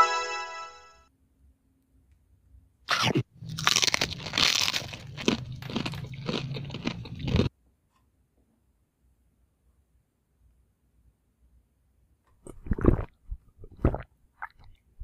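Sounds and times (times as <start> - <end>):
crunching and chewing: 3.4 - 7.5.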